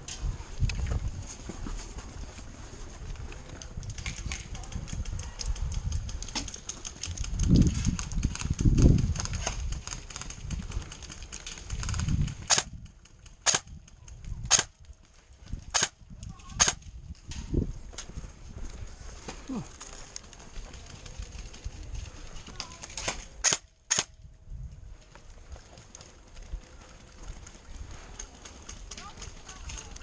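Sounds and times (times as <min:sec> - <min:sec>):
airsoft gun shots: 0:12.5 - 0:12.7, 0:13.4 - 0:13.7, 0:14.5 - 0:14.7, 0:15.7 - 0:16.0, 0:16.6 - 0:16.8, 0:23.4 - 0:24.1.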